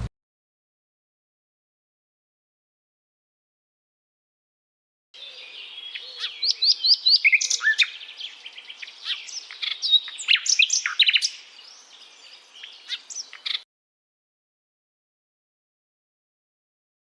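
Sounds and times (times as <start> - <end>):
songbird singing: 5.2 - 13.7.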